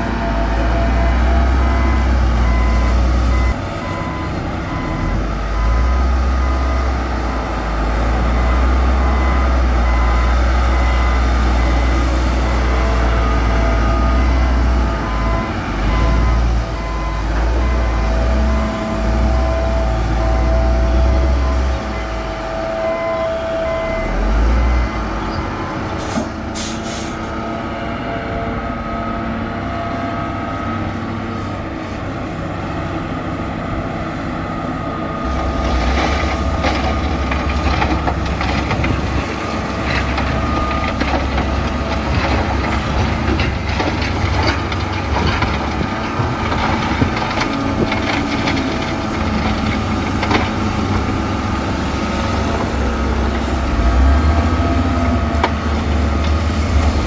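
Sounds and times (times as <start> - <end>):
bulldozer diesel engine: 0.0 - 57.0
knocks and clanks: 35.6 - 51.2.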